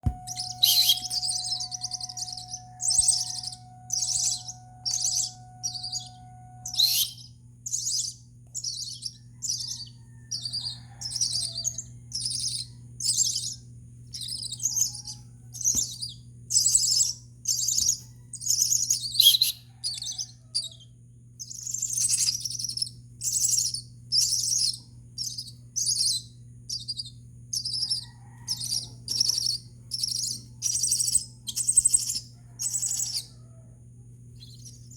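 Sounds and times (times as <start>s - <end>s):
bird chick begging calls: 0.0s - 20.8s, 27.6s - 33.5s.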